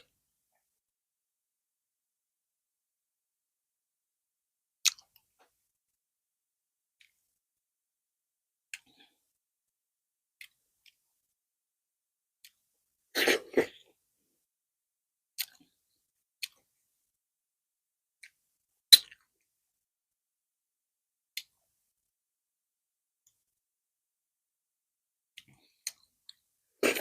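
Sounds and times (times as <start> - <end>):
wet mouth smacks and clicks: 4.8 - 5.1, 18.2 - 19.2.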